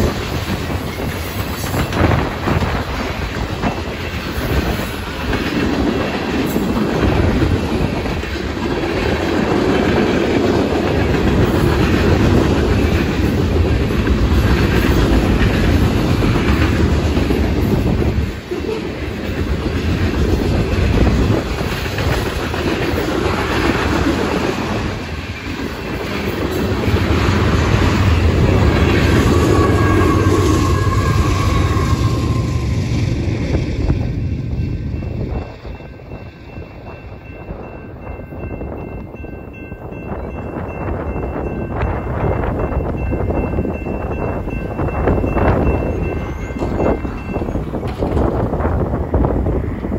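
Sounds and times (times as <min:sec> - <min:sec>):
wheels clacking over rail joints: 0:00.0 - 0:34.7, 0:44.5 - 0:48.8
freight train rolling past: 0:00.0 - 0:49.9.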